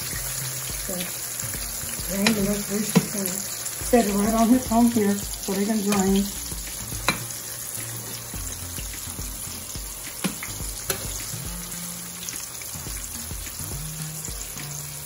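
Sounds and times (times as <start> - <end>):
tomato slices sizzling in oil: 0.0 - 15.0
spatula knocking a pan: 1.6 - 3.2, 5.9 - 7.4, 8.8 - 11.5.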